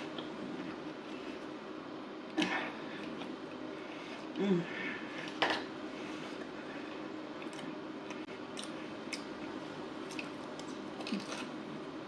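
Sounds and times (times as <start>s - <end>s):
person chewing: 7.4s - 11.7s.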